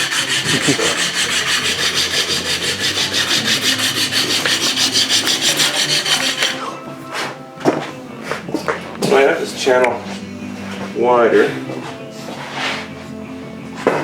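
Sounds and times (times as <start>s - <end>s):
abrasive rubbing on wood or bone: 0.0s - 7.3s.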